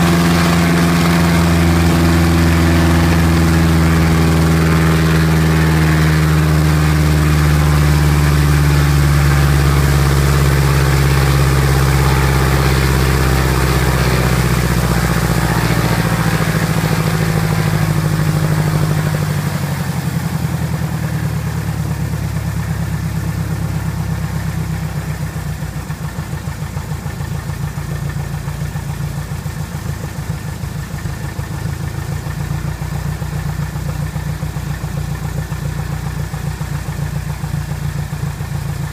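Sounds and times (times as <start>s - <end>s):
aircraft piston engine and propeller: 0.0s - 38.9s.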